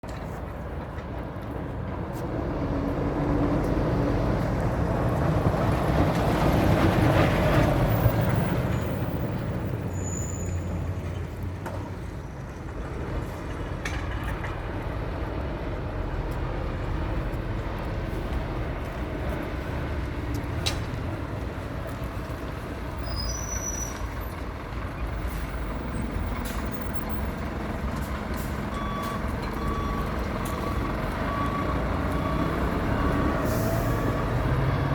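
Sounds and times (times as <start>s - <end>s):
diesel truck engine: 0.0s - 34.9s
reversing beeps: 28.7s - 34.9s
air brakes hissing: 33.2s - 34.4s.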